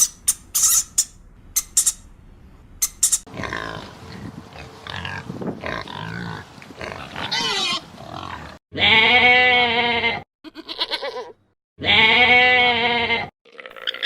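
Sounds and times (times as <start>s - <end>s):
pigs grunting and squealing: 3.2s - 14.0s
loud long bleat: 5.8s - 13.8s.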